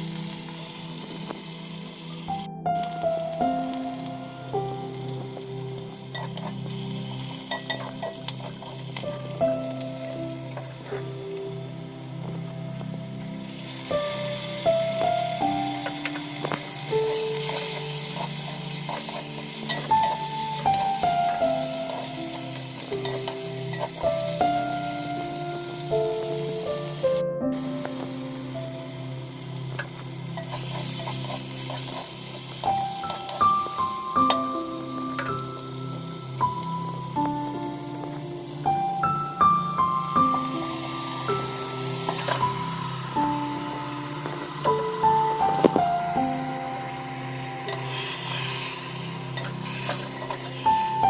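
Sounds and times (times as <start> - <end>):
background music: 0.0 - 51.0
food frying and sizzling: 0.0 - 51.0.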